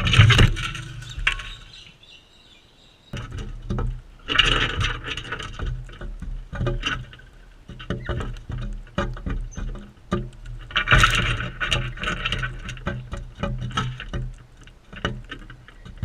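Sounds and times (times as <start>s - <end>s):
beaks and claws tapping: 0.0s - 2.1s.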